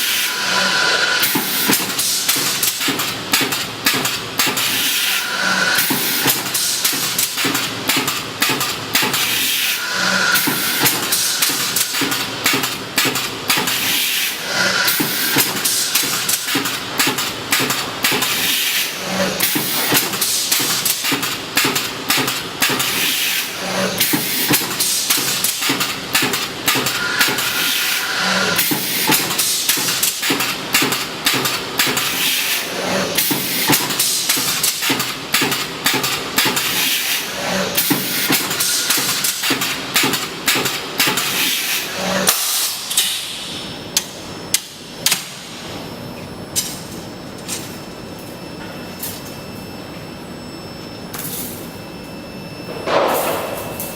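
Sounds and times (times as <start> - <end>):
steady machine hiss: 0.0 - 3.0, 4.5 - 7.6, 9.1 - 12.7, 13.6 - 21.3.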